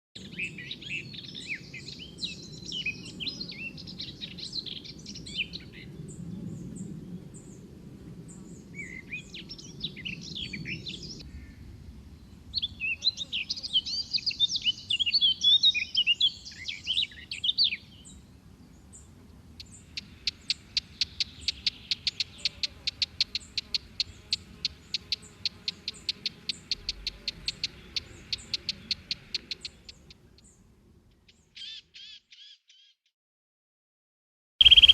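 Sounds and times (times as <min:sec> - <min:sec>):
birds chirping twitters: 0:12.6 - 0:18.2, 0:19.6 - 0:30.6, 0:34.6 - 0:34.9
sharp repeated bird notes: 0:19.6 - 0:30.2, 0:34.6 - 0:34.9.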